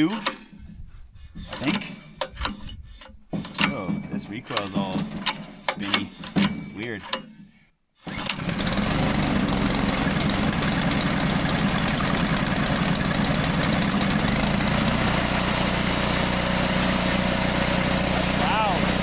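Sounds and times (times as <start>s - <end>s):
recoil starter pull: 0.0s - 0.6s, 1.4s - 7.4s, 8.0s - 19.0s
gasoline engine running: 8.1s - 19.0s.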